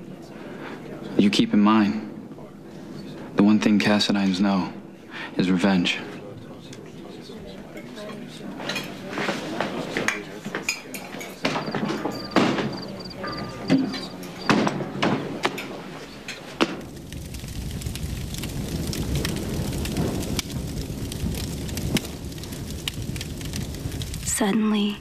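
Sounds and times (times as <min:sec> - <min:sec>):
dishes and cutlery clinking: 0:07.7 - 0:16.6
heavy rain hissing: 0:12.1 - 0:25.0
low rumble: 0:16.8 - 0:24.4.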